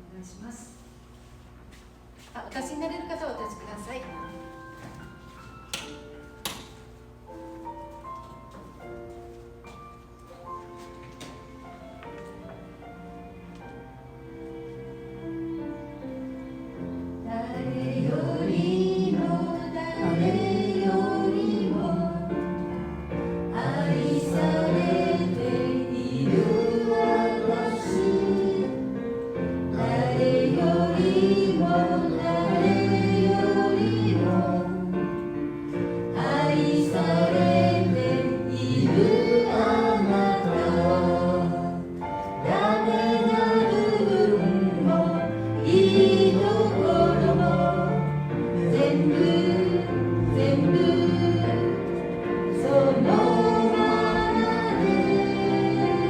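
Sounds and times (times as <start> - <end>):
group singing worship song: 17.2 - 56.0.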